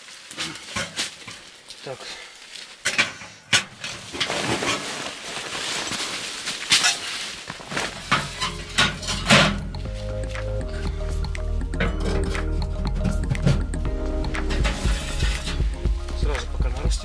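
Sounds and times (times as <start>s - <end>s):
camp gear clattering and rustling: 0.0s - 10.1s
background music: 7.9s - 17.0s.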